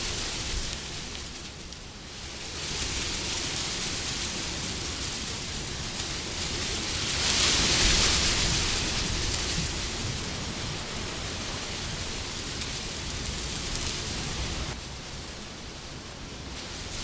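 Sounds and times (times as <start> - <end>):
wind blowing: 0.0 - 17.0.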